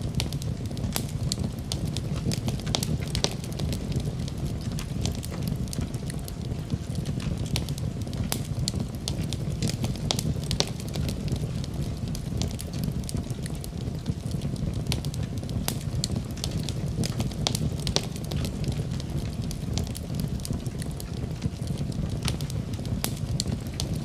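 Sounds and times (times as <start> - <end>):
fire crackling in a fireplace: 0.0 - 24.0.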